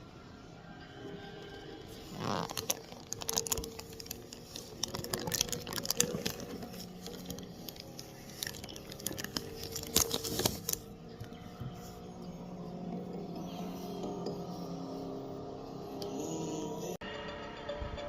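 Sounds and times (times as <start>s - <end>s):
plastic bricks clicking and rattling: 2.1s - 11.4s.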